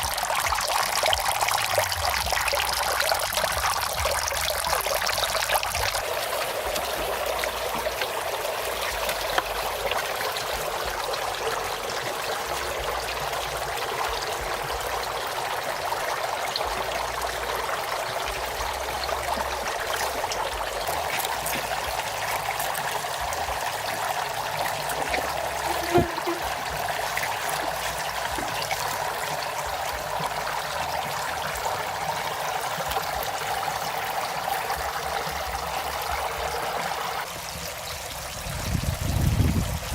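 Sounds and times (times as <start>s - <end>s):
water running and trickling: 0.0s - 39.9s.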